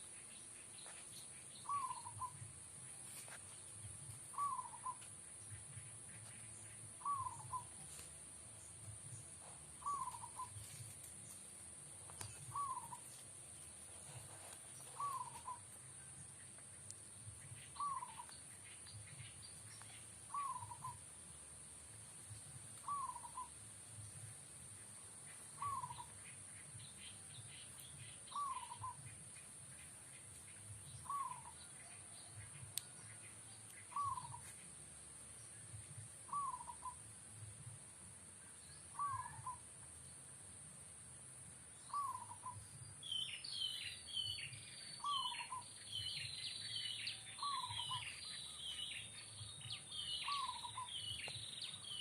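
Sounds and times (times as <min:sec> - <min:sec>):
small birds chirping: 0:00.0 - 0:52.0
dove cooing: 0:01.6 - 0:02.4, 0:04.3 - 0:05.0, 0:07.0 - 0:07.9, 0:09.8 - 0:10.7, 0:12.3 - 0:13.0, 0:14.0 - 0:15.7, 0:17.8 - 0:18.3, 0:20.3 - 0:21.0, 0:22.8 - 0:23.5, 0:25.6 - 0:26.2, 0:28.3 - 0:29.0, 0:31.0 - 0:32.1, 0:33.9 - 0:34.4, 0:36.3 - 0:37.0, 0:38.9 - 0:39.6, 0:41.9 - 0:42.6, 0:50.2 - 0:51.0.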